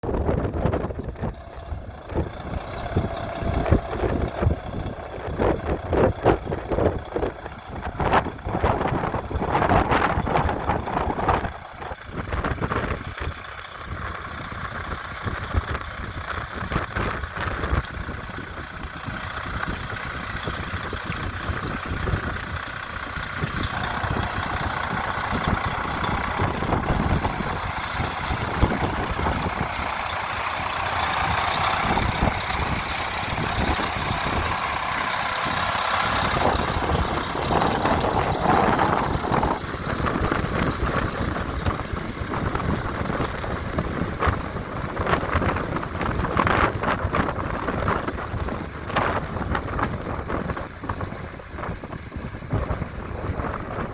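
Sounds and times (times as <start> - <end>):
heavy truck engine running: 0.0 - 53.9
wind buffeting microphone: 0.0 - 53.9.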